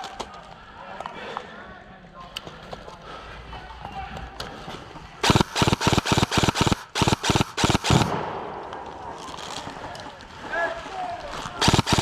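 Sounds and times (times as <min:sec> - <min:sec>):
airsoft gun firing: 0:05.2 - 0:08.7, 0:11.6 - 0:12.0.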